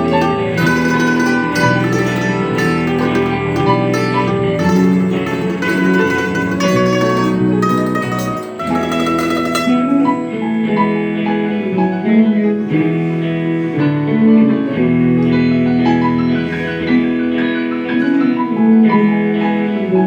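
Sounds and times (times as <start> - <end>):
folk instrumental band music: 0.0 - 10.4.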